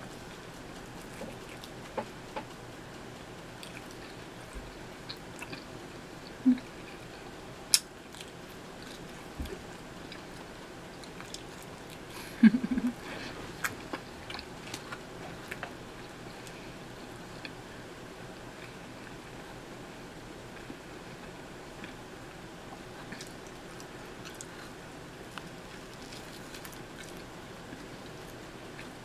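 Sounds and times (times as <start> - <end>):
person chewing crunchy crust: 0.0 - 2.6, 3.2 - 12.3, 13.1 - 16.7, 22.8 - 29.0.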